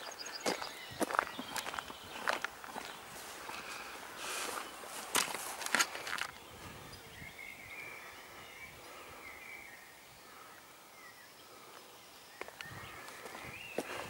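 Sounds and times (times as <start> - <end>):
footsteps on dirt track: 0.0 - 6.5, 12.4 - 14.0
faint wavering birdsong: 0.0 - 14.0
woodland ambience: 0.0 - 14.0.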